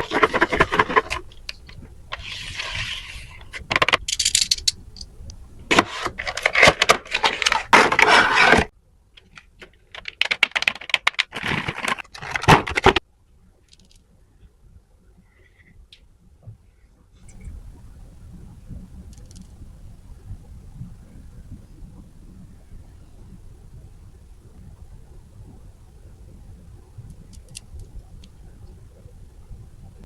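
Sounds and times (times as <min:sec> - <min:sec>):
toy packaging crinkling: 0:00.0 - 0:04.8, 0:05.7 - 0:08.7, 0:09.9 - 0:13.0.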